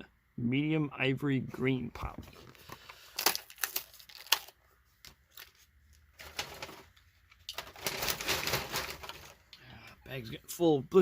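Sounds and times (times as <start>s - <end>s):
plastic blister pack crackling: 2.6s - 4.6s, 5.3s - 9.5s
plastic rustle: 5.3s - 9.5s.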